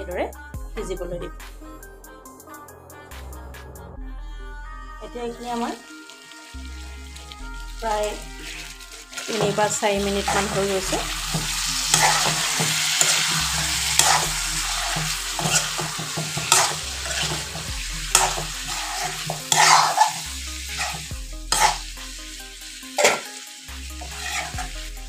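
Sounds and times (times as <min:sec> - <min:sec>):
potatoes sizzling in oil: 0:05.2 - 0:25.0
metal spatula scraping pan: 0:08.0 - 0:21.9, 0:23.0 - 0:24.9.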